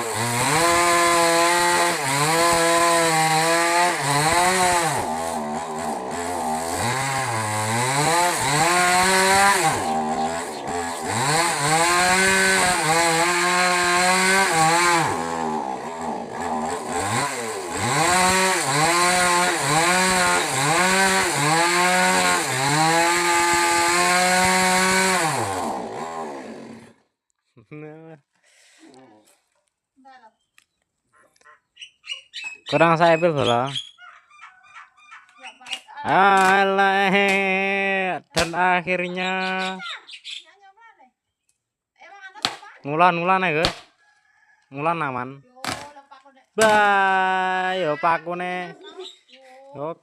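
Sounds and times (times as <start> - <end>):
chainsaw cutting wood: 0.0 - 27.1, 36.1 - 37.8, 38.4 - 38.7, 43.6 - 43.9, 45.6 - 46.0, 46.6 - 49.0.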